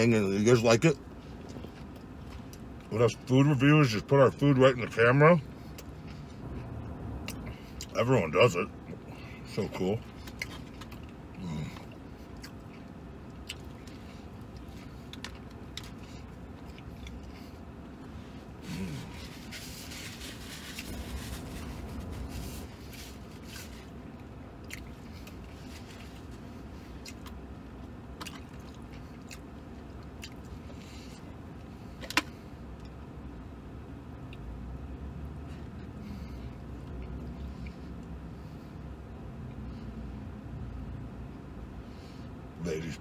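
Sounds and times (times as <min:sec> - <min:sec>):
man chewing and biting: 0:10.0 - 0:33.0
paper napkin rustling: 0:18.9 - 0:23.8.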